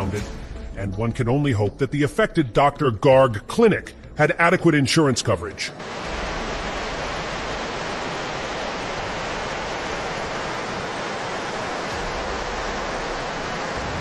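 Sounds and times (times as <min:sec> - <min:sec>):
flood water rushing: 0:05.8 - 0:14.0.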